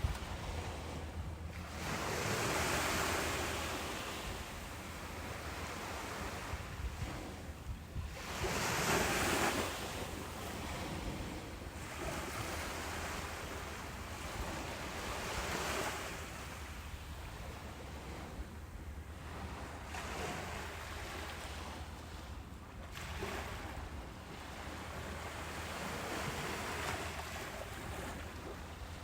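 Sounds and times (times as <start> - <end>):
low wind rumble: 0.0 - 19.8
ocean waves breaking: 0.0 - 29.0.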